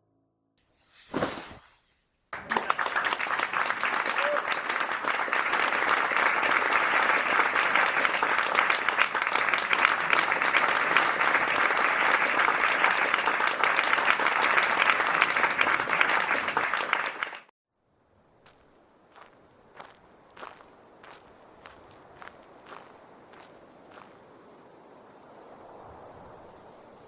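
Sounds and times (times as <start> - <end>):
audience applauding: 2.3 - 17.5.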